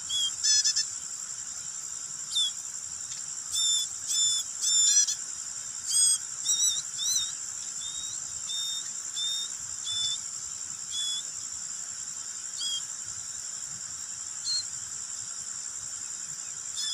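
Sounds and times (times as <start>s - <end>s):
baby bird chirping: 0.0s - 0.9s, 2.3s - 2.6s, 3.5s - 5.2s, 5.8s - 10.2s, 10.9s - 11.2s, 12.6s - 12.9s.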